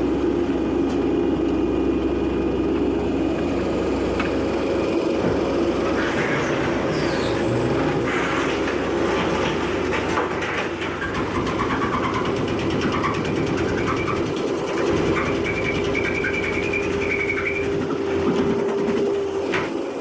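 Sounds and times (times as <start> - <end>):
baler engine and hydraulics drone: 0.0 - 10.1, 10.8 - 20.0
high squealing tones: 11.0 - 18.0.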